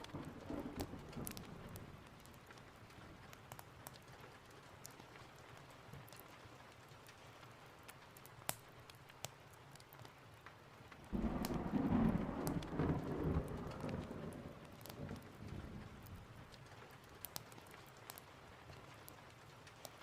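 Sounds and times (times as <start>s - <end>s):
thunderclap rumbling: 0.0s - 2.3s, 11.1s - 16.3s
heavy rain hiss: 11.1s - 16.4s.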